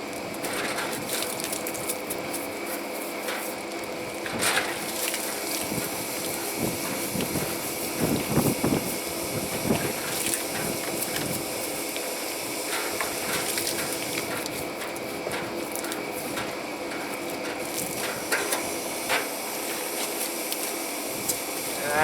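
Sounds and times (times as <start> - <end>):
pressure washer spraying water: 4.6 - 22.0.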